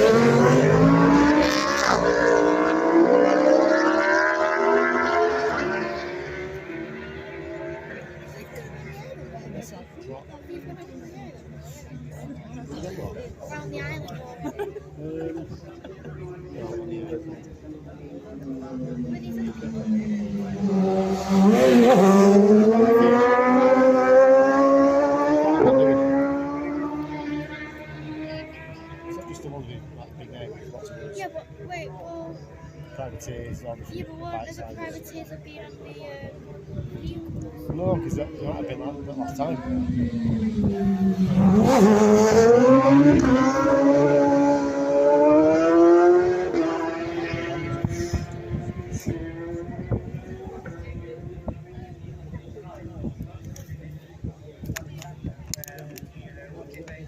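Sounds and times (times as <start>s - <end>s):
motorcycle passing at speed: 0.0s - 8.2s, 18.4s - 29.5s, 36.9s - 51.3s
motorcycle engine accelerating past: 39.6s - 50.6s.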